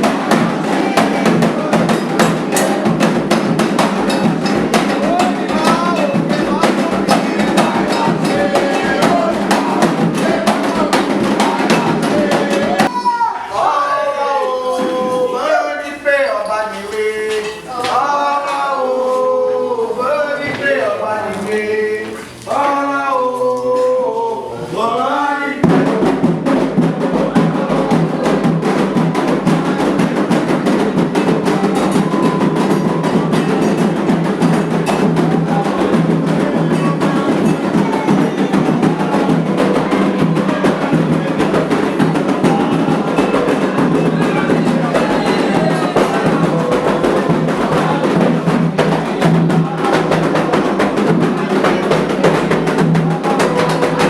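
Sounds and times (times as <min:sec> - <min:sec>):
hand drums fast rhythm: 0:00.0 - 0:13.3, 0:25.6 - 0:54.0
person singing: 0:00.0 - 0:54.0.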